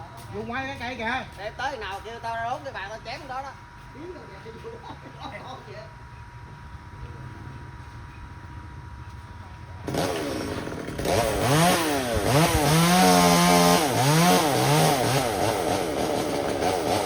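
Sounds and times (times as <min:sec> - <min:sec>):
chainsaw revving: 0:09.8 - 0:17.0.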